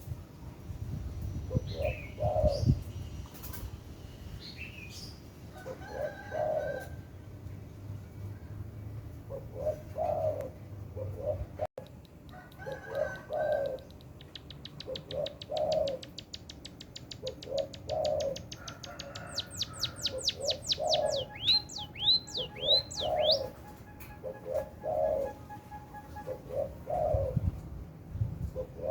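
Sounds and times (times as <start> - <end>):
dove cooing: 1.5 - 2.8, 5.5 - 7.1, 9.3 - 11.7, 12.4 - 13.9, 14.7 - 16.2, 17.0 - 27.6, 28.4 - 28.9
songbird ticks and whistles: 11.8 - 25.4.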